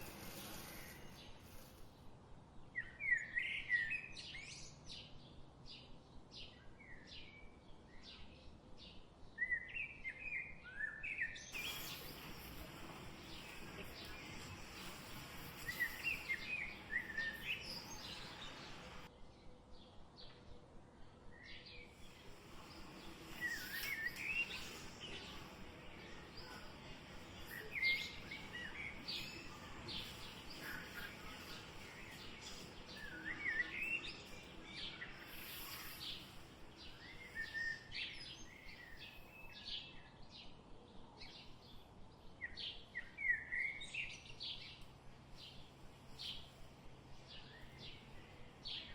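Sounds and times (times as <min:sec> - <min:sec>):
faint steady background noise: 0:00.0 - 0:48.9
birds chirping: 0:11.6 - 0:19.1, 0:21.8 - 0:39.6.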